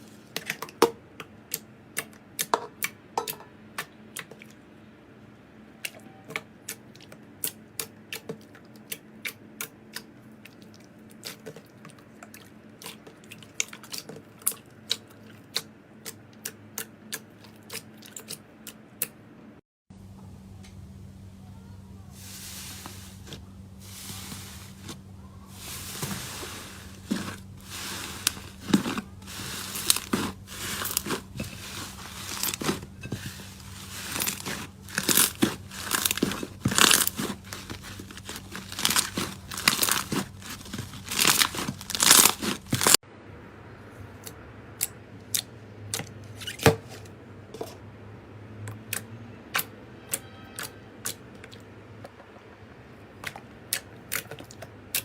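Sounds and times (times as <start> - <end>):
slime crackling when squeezed: 33.4 - 43.0.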